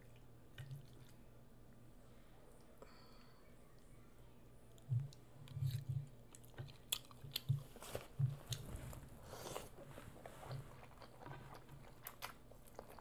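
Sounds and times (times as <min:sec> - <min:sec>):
person chewing food: 0:04.7 - 0:13.0.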